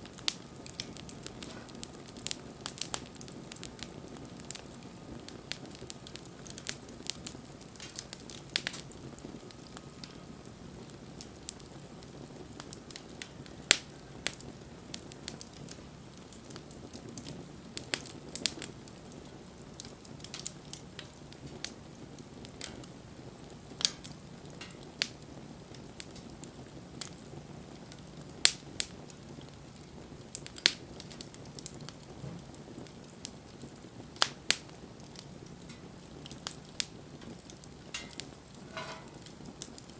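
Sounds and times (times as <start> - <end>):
rush of flame: 0.0 - 19.2
wood fire crackling: 0.0 - 39.9.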